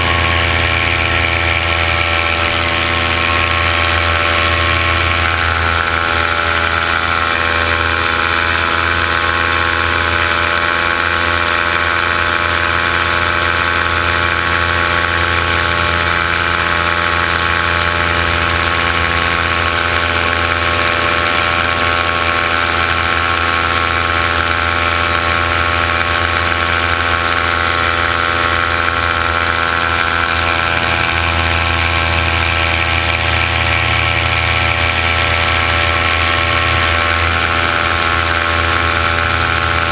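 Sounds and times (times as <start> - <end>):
drone motors humming: 0.0 - 39.9.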